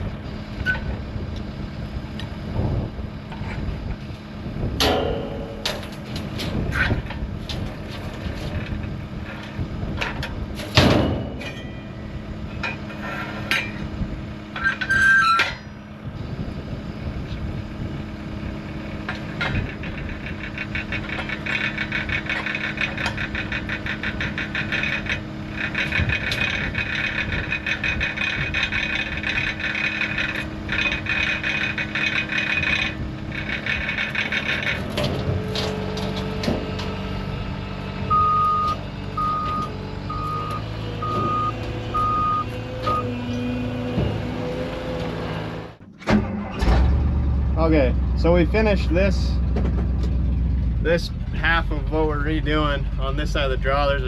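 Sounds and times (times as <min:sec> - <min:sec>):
loader engine idling: 0:00.0 - 0:54.0
sharp metal clanks: 0:04.8 - 0:06.2.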